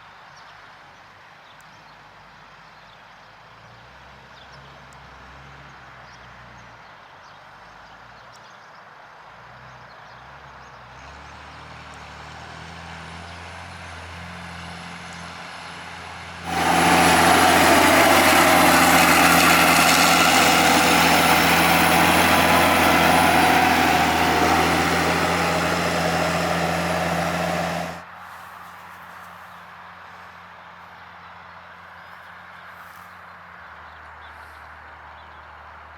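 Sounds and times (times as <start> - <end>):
tractor diesel engine: 16.3 - 28.0
steady whine: 16.5 - 28.0.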